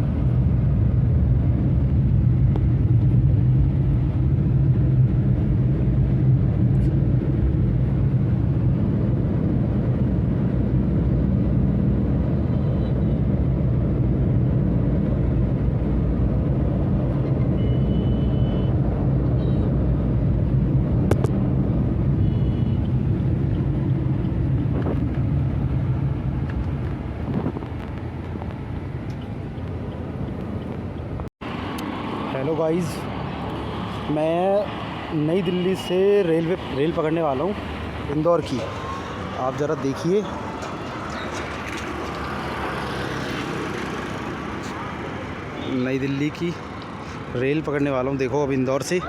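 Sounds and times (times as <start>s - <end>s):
vehicle running rumble: 18.8s - 32.5s, 36.4s - 45.5s.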